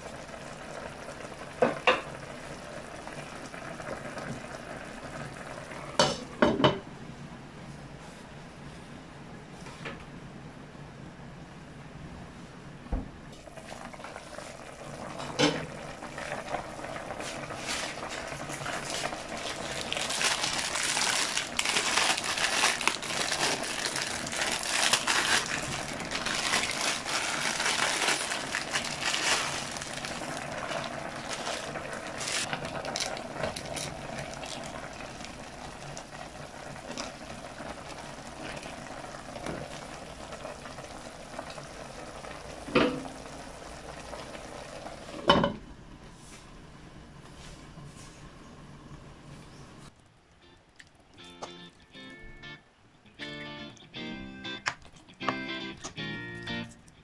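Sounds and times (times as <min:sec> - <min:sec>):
broth bubbling: 0:13.4 - 0:45.0
plastic packet crinkling: 0:17.4 - 0:35.4.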